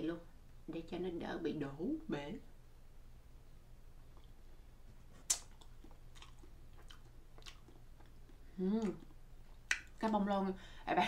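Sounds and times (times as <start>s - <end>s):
person chewing cake: 4.0s - 10.1s
wet mouth clicks and smacks: 5.2s - 10.1s
person humming: 8.6s - 9.0s.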